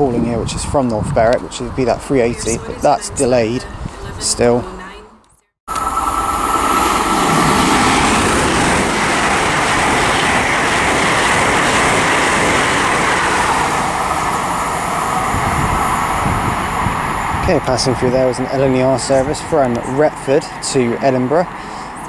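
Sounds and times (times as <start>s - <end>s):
express train rushing past: 1.5s - 5.1s, 5.7s - 22.0s
steady high tone: 2.3s - 3.6s, 5.7s - 8.9s.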